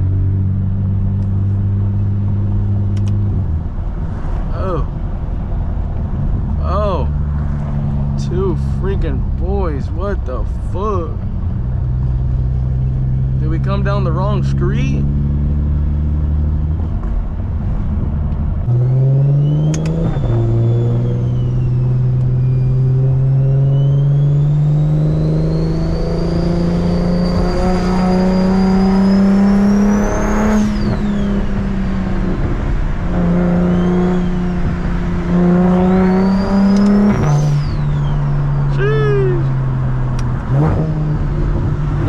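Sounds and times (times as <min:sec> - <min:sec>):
car engine pulling through gears: 0:00.0 - 0:42.0
high turbo whistle: 0:18.8 - 0:31.6, 0:35.4 - 0:39.5.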